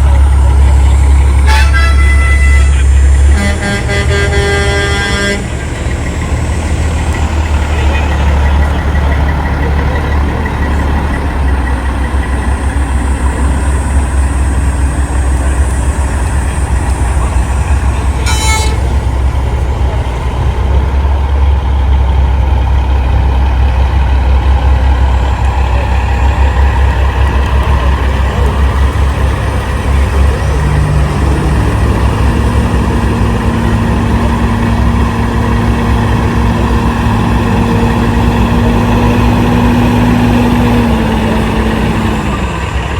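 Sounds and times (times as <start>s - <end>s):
truck diesel engines running: 0.0s - 42.9s
high-pitched horn toot: 1.3s - 5.6s, 18.2s - 19.1s.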